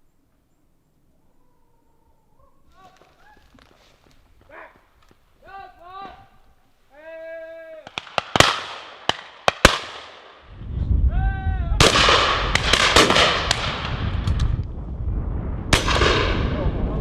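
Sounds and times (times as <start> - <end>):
shotgun shots: 7.8 - 10.4, 11.8 - 14.1, 15.7 - 16.5.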